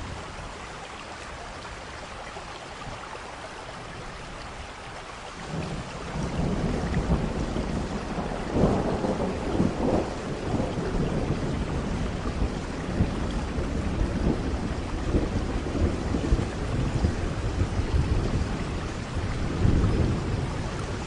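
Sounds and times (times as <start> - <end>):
steady rain: 0.0 - 21.0
thunder rumbling: 5.4 - 21.0.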